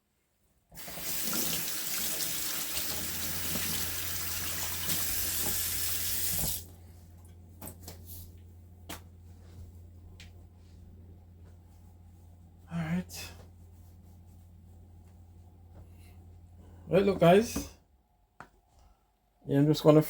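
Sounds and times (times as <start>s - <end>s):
tap running into a sink: 0.8s - 6.6s.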